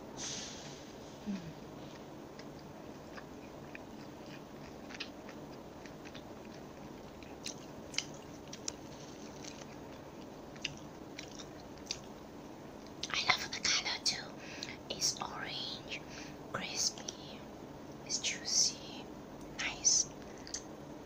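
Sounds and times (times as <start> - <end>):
steady low hiss: 0.0 - 21.0
person chewing with mouth closed: 1.2 - 12.2, 20.2 - 20.7.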